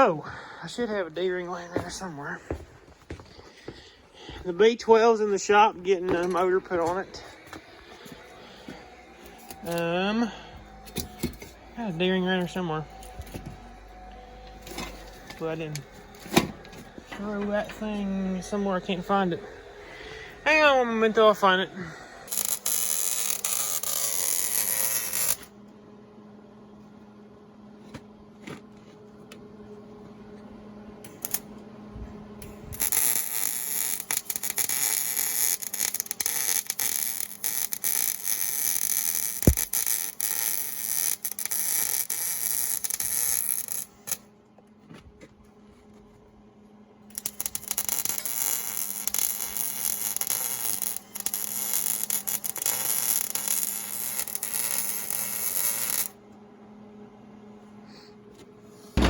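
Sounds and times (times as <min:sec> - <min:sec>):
steady hum: 0:00.0 - 0:59.0
welder crackling and sputtering: 0:04.2 - 0:25.5, 0:31.0 - 0:31.6, 0:32.4 - 0:44.3, 0:47.1 - 0:56.2.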